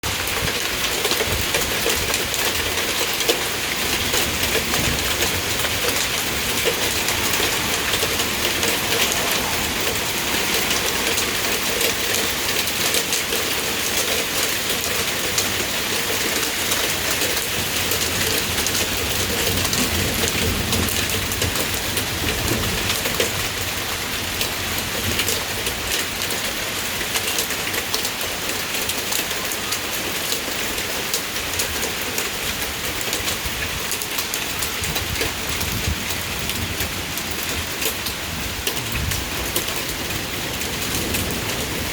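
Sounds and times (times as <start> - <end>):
hail clattering: 0.0 - 23.5
rain hissing: 0.1 - 24.9.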